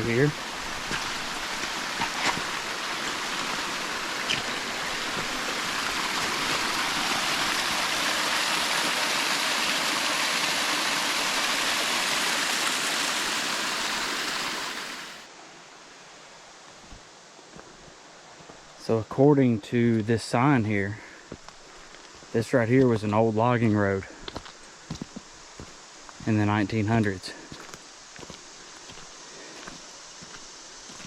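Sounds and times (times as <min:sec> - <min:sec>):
creek water rushing: 0:00.0 - 0:16.3.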